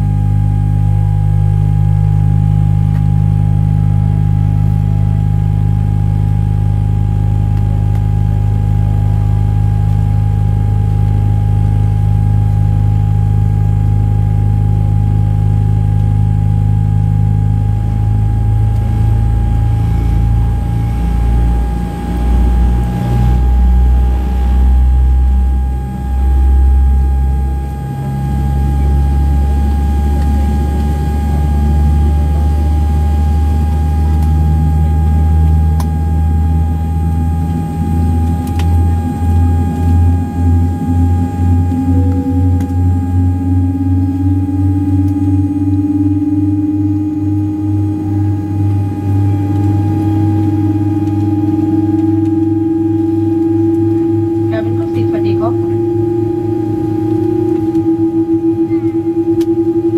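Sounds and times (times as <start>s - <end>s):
airliner cabin hum: 0.0s - 59.9s
thin high whine: 17.6s - 59.9s.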